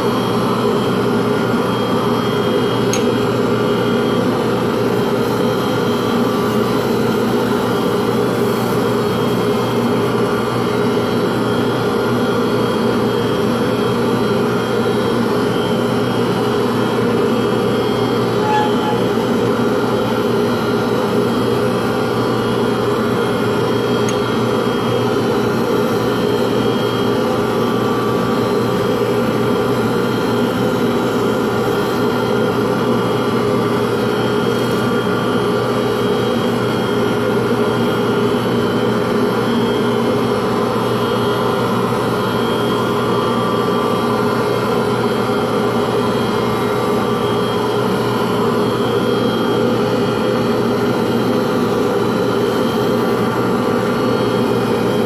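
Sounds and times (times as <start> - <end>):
electric motor humming: 16.1 - 35.0.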